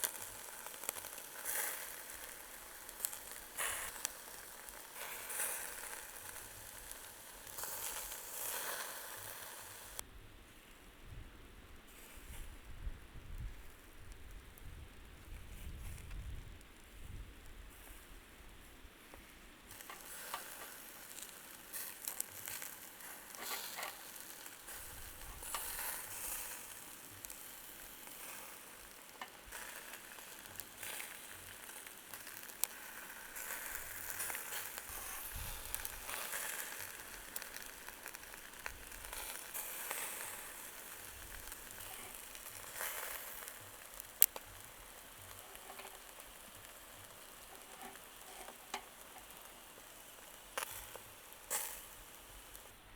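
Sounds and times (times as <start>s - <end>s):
meat sizzling: 0.0s - 10.0s, 19.6s - 52.9s
small ticks: 19.1s - 52.7s.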